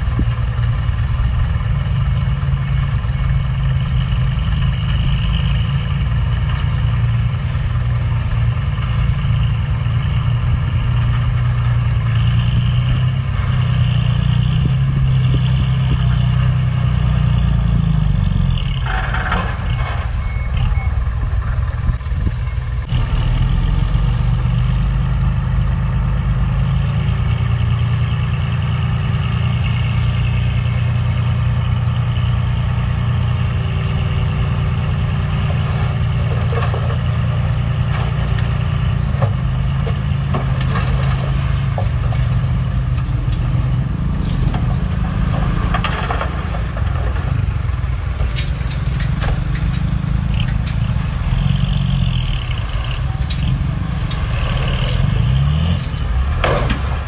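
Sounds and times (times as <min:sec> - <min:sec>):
heavy diesel engines humming: 0:00.0 - 0:57.0
reversing alarm beeping: 0:20.0 - 0:21.2.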